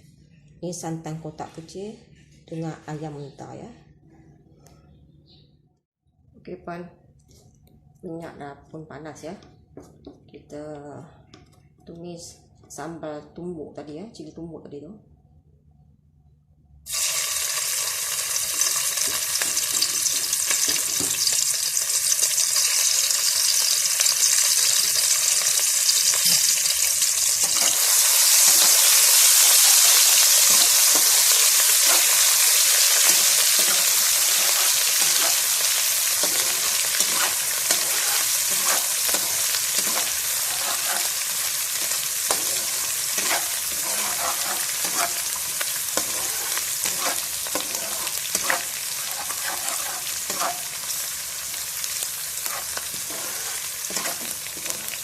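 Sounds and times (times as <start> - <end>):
paste sizzling in hot oil: 16.9 - 55.0.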